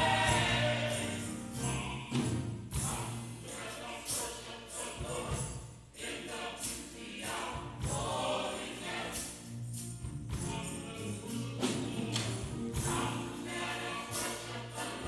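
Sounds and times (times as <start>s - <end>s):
gospel choir singing: 0.0s - 15.0s
tambourine shaking: 0.0s - 15.0s.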